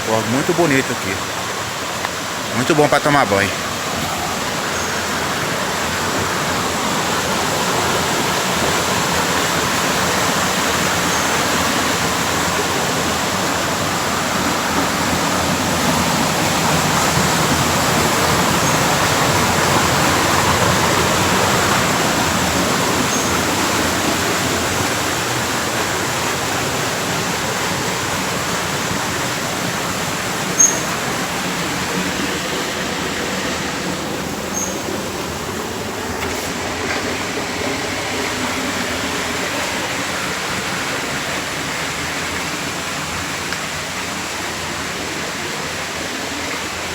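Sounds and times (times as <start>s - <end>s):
creek water rushing: 0.0s - 46.9s.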